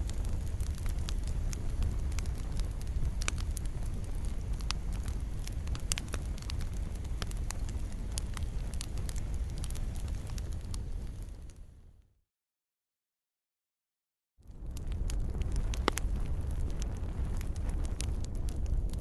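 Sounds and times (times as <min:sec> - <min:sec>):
wood fire crackling: 0:00.0 - 0:12.0, 0:14.4 - 0:19.0
low rumble of flames: 0:00.0 - 0:12.1, 0:14.4 - 0:19.0.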